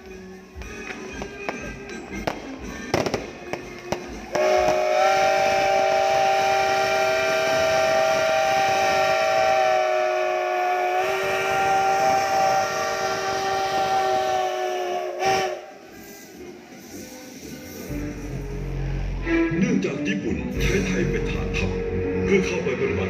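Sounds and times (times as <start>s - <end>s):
steam locomotive whistle: 2.7s - 18.4s.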